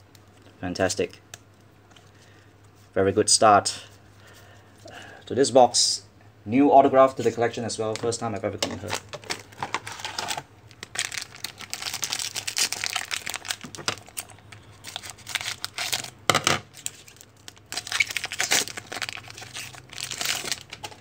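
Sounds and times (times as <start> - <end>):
card pack wrappers crinkling: 8.8 - 21.0.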